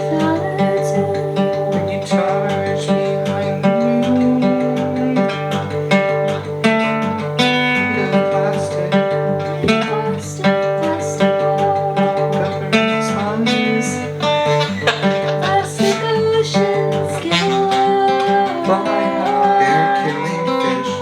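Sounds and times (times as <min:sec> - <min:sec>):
live guitar music: 0:00.0 - 0:21.0.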